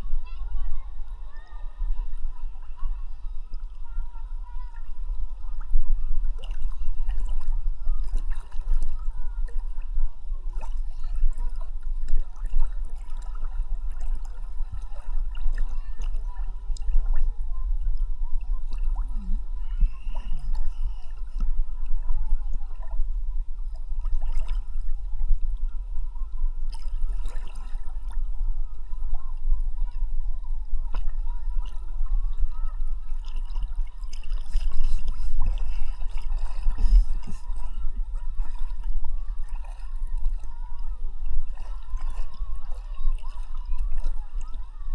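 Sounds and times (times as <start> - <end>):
water sloshing and gurgling: 0.0 - 44.9
small splashes and clicks: 33.1 - 37.8.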